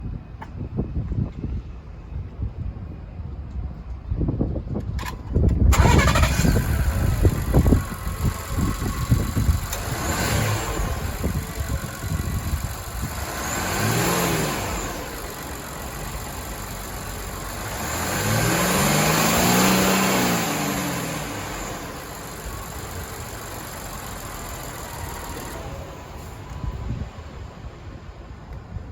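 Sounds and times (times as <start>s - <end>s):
van engine starting and idling: 4.8s - 27.2s
engine revving: 5.7s - 26.2s.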